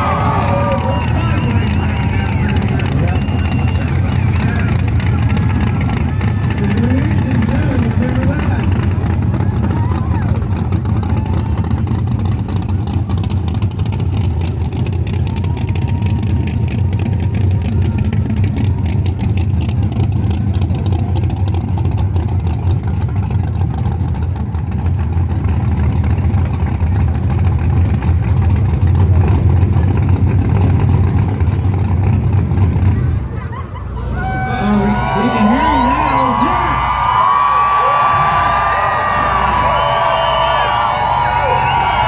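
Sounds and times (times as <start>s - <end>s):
car engine at high revs: 0.0s - 33.4s.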